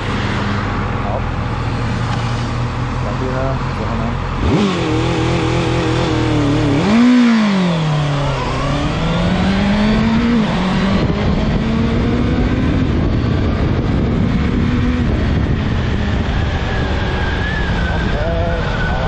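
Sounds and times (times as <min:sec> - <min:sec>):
motorcycle engine accelerating: 0:00.0 - 0:19.0
wind noise on microphone: 0:04.4 - 0:19.0.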